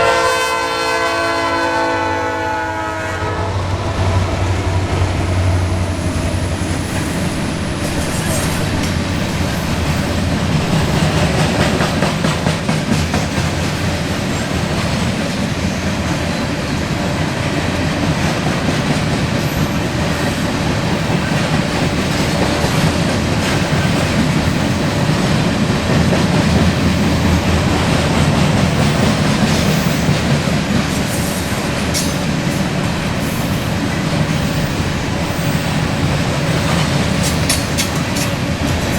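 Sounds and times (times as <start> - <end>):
wheels clacking over rail joints: 3.9 - 38.9.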